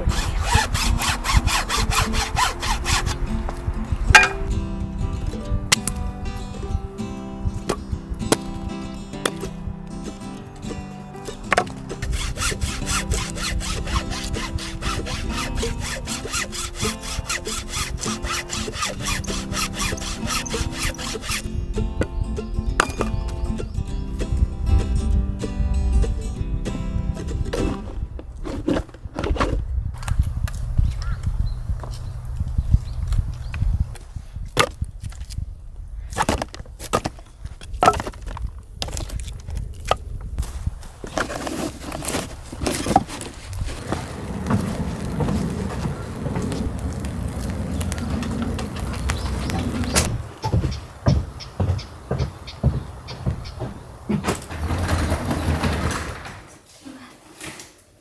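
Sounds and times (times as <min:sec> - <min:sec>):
hand saw cutting wood: 0:00.0 - 0:03.3, 0:11.2 - 0:21.5, 0:41.0 - 0:50.2, 0:54.1 - 0:56.2
wooden knocks of firewood logs: 0:04.1 - 0:04.5, 0:11.3 - 0:21.4, 0:36.1 - 0:40.0, 0:41.0 - 0:56.4.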